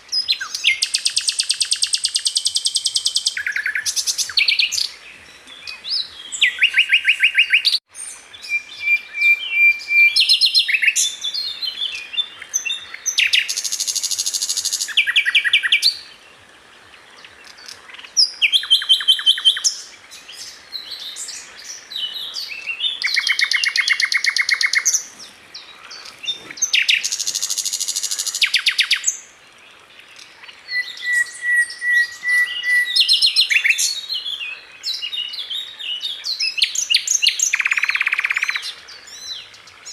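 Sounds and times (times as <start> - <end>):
bird whistles: 30.7 - 34.0.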